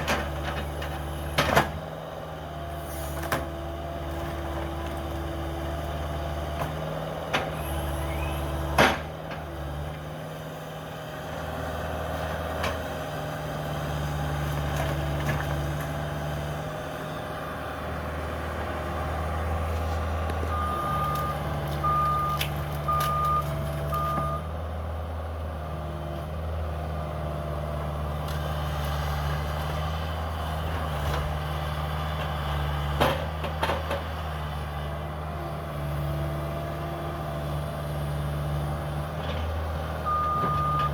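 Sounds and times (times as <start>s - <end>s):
excavator diesel engine running: 0.0s - 40.9s
backup alarm beeps: 20.5s - 24.5s, 40.1s - 40.9s.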